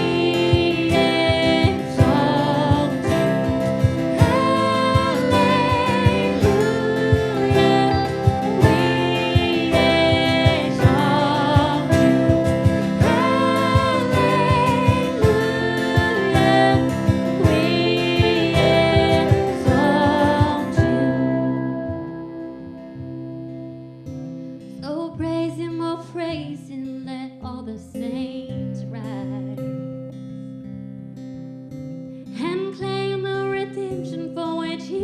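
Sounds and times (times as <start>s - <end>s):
band accompaniment with steady beat: 0.0s - 21.1s
voices singing with vibrato: 0.0s - 21.6s.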